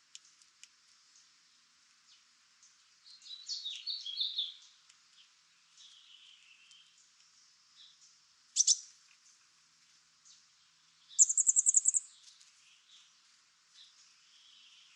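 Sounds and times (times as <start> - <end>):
bird warbling call: 8.6 - 8.8, 11.2 - 12.0
birds chirping: 8.6 - 8.8, 10.3 - 13.2.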